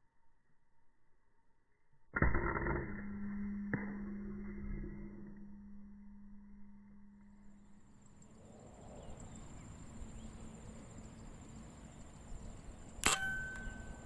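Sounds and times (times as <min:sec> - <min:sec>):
high insect trill: 0:07.5 - 0:14.0
air rifle shot: 0:13.0 - 0:13.9.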